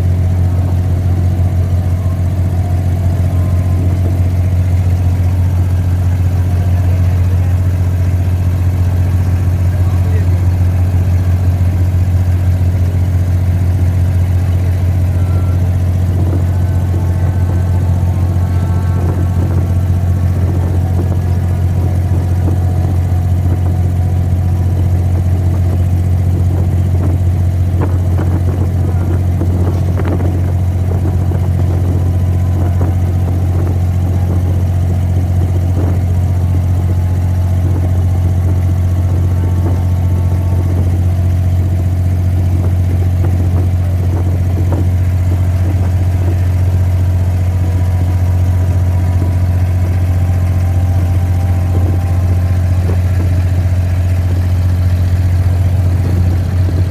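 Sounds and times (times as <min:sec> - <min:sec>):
boat diesel engine humming: 0:00.0 - 0:56.9.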